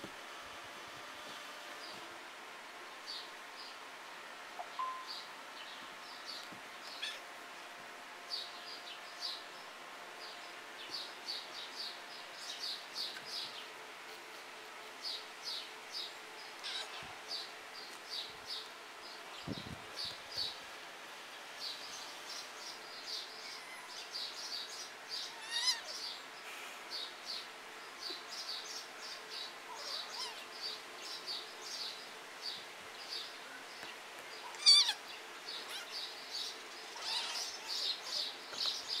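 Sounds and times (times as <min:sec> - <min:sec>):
birds chirping: 0:04.6 - 0:07.3, 0:14.9 - 0:39.0.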